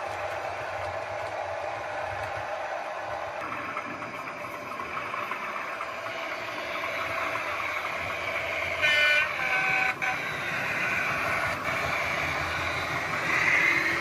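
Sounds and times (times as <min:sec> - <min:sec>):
model locomotive engine sound: 0:00.0 - 0:14.0
locomotive horn blast: 0:08.6 - 0:14.0.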